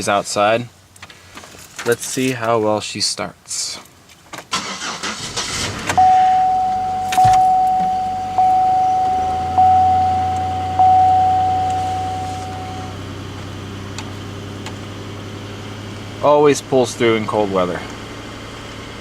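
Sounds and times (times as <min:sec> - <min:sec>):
car engine starting and idling: 0:04.0 - 0:19.0
dashboard warning chime: 0:06.0 - 0:13.0.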